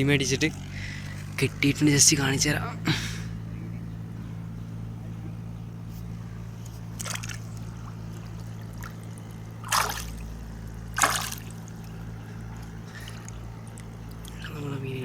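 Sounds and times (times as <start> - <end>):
steady low hum: 0.0 - 15.0
fish splashing in water: 6.9 - 14.4.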